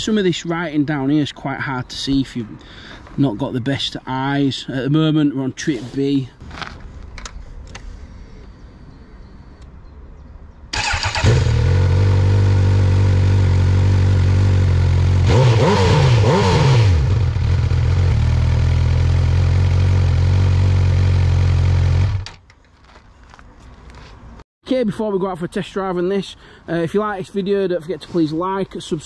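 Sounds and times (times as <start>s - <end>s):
motorcycle engine starting and idling: 10.7s - 22.6s.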